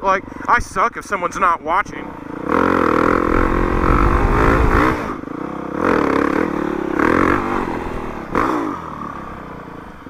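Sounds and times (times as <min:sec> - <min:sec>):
dirt bike engine revving: 0:01.9 - 0:10.0.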